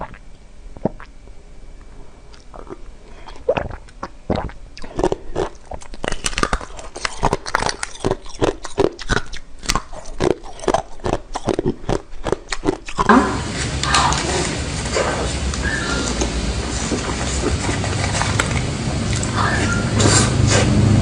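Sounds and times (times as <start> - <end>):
crunchy bites and chewing: 2.3 - 13.2
steady rushing noise: 13.2 - 21.0.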